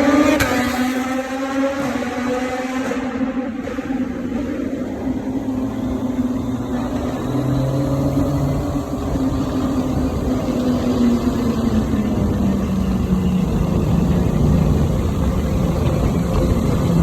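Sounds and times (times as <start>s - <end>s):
motorcycle engine in a tunnel: 0.0s - 17.0s
road and wind rumble: 0.0s - 17.0s.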